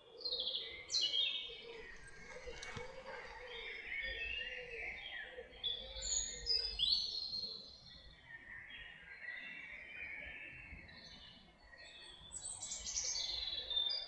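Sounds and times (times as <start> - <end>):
songbirds singing: 0.0 - 7.9.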